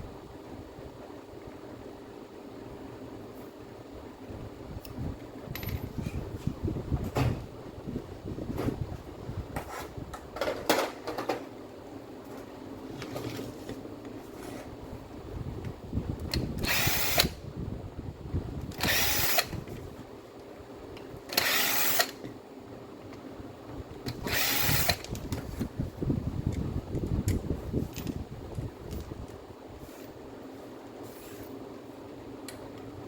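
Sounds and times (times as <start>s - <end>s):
tools and parts clicking: 5.5s - 6.0s, 18.6s - 19.6s, 21.0s - 22.4s, 24.0s - 25.4s, 26.5s - 29.4s
power tool bursts: 16.6s - 17.3s, 18.8s - 19.6s, 21.3s - 22.2s, 24.2s - 25.0s.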